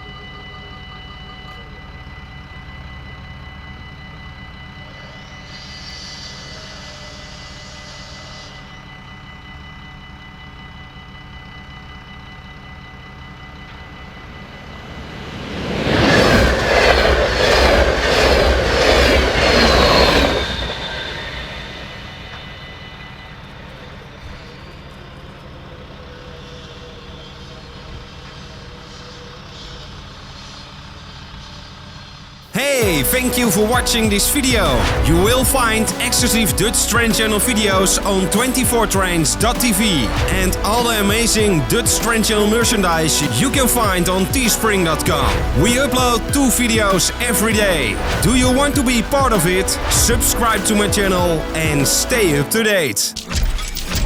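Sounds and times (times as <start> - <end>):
train wheels clattering: 15.2 - 22.6
level crossing bells ringing: 32.6 - 53.2.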